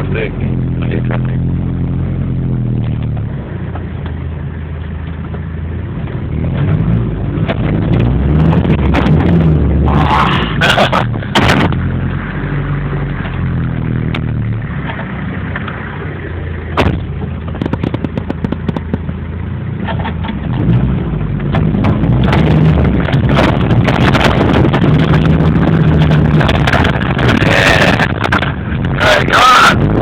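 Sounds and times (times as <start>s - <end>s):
vehicle engine revving: 0.0s - 30.0s
wind on microphone: 7.0s - 10.6s, 16.8s - 19.0s, 21.6s - 30.0s.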